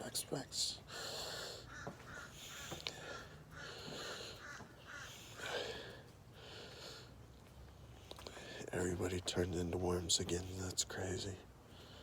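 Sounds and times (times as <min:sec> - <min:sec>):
harsh bird calls: 0:01.4 - 0:05.9.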